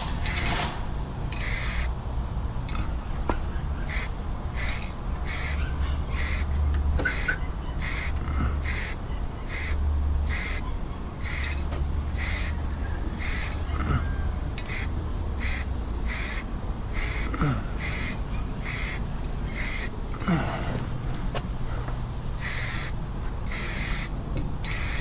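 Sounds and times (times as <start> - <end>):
repeated hissing strokes: 0.0 - 2.0, 3.8 - 10.6, 11.2 - 13.7, 14.6 - 20.0, 22.4 - 25.0
steady low hum: 0.0 - 25.0.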